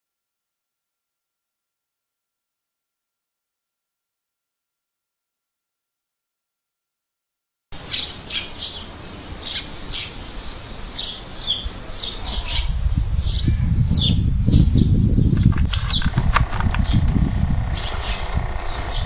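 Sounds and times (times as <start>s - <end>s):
small birds chirping: 7.8s - 19.0s
low rumble: 12.7s - 19.0s.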